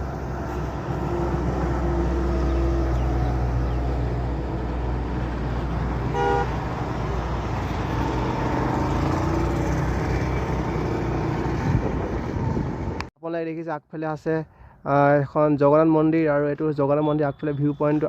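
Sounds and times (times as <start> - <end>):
car road and engine noise: 0.0 - 13.1
vehicle horn honk: 6.1 - 6.6.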